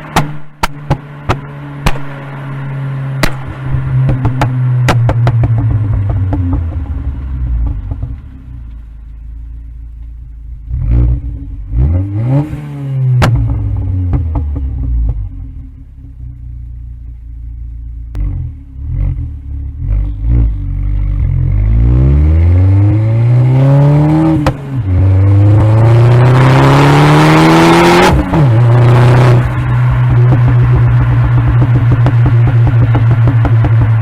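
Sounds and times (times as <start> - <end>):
exhaust pops: 0.0 - 2.4, 3.1 - 17.4, 24.1 - 26.6, 27.7 - 34.0
car engine revving and accelerating: 0.0 - 8.8, 10.6 - 15.8, 18.1 - 34.0.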